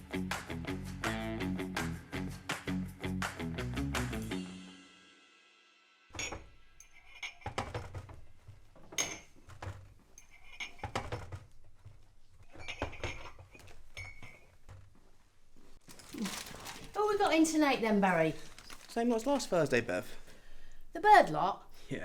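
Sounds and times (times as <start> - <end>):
crockery clinking: 6.1 - 11.4, 12.4 - 14.6.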